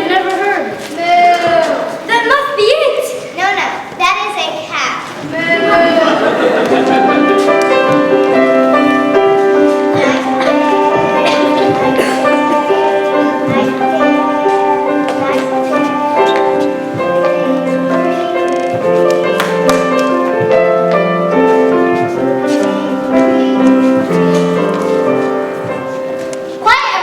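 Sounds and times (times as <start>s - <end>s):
piano music: 5.4s - 27.0s.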